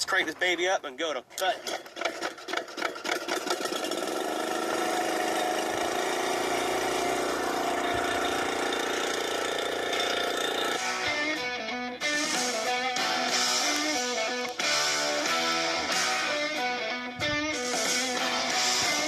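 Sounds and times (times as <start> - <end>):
brush cutter engine running: 1.6 - 11.2
guitar music: 5.4 - 19.0.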